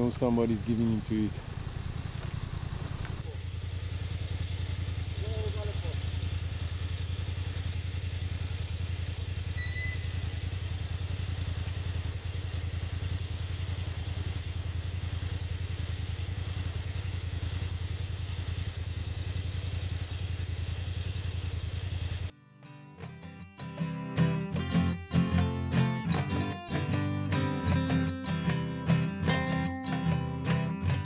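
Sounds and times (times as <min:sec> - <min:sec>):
motorcycle engine idling: 0:00.0 - 0:22.3, 0:23.8 - 0:31.0
short high beep: 0:09.6 - 0:10.2
strummed acoustic guitar music: 0:22.3 - 0:31.0.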